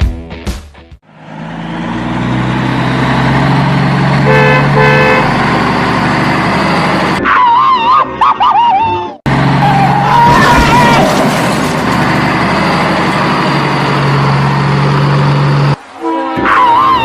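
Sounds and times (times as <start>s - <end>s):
vehicle engine running: 1.0s - 7.2s, 9.2s - 15.8s
horn toots: 4.2s - 5.5s.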